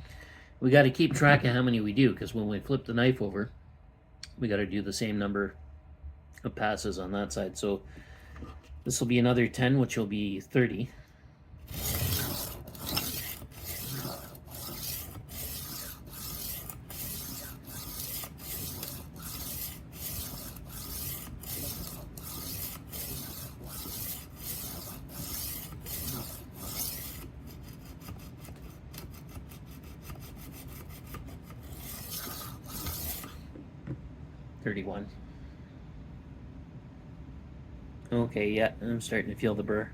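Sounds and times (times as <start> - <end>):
knife sharpener rasping on blade: 11.7 - 33.4.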